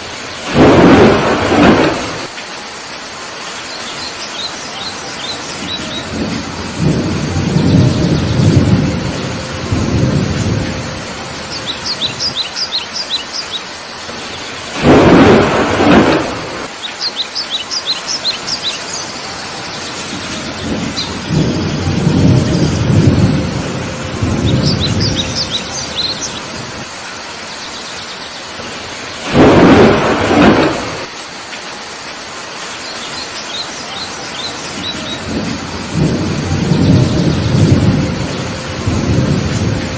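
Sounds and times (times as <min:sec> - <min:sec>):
heavy rain falling: 0:00.0 - 0:39.9
loud thunderclaps: 0:00.4 - 0:02.3, 0:05.6 - 0:12.4, 0:14.1 - 0:16.7, 0:20.0 - 0:26.9, 0:28.6 - 0:31.1, 0:34.8 - 0:39.9
rolling thunder: 0:00.4 - 0:02.3, 0:05.5 - 0:12.7, 0:14.1 - 0:16.8, 0:19.6 - 0:27.0, 0:28.6 - 0:31.1, 0:34.7 - 0:39.9
bird chirping: 0:03.7 - 0:06.2, 0:11.4 - 0:14.6, 0:16.7 - 0:21.8, 0:24.4 - 0:26.7.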